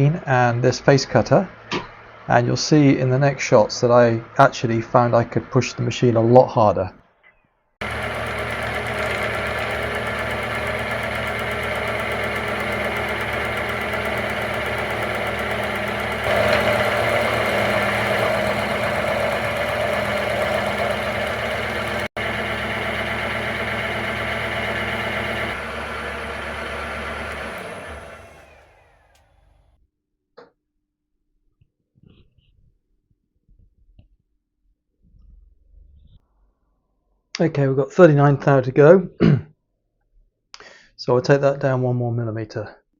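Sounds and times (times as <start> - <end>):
milling machine cutting metal: 7.8 - 29.6.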